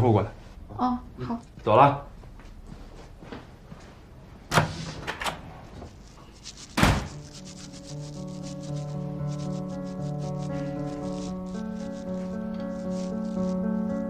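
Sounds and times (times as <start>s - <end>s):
door thump shutting: 6.8s - 7.2s
soft background music: 7.0s - 14.0s.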